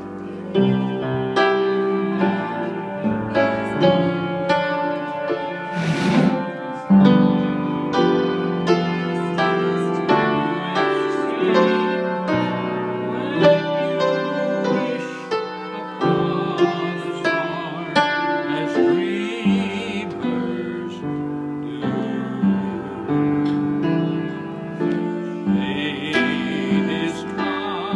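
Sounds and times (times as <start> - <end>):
person singing: 0.0 - 27.9
piano playing notes and chords: 0.0 - 27.9.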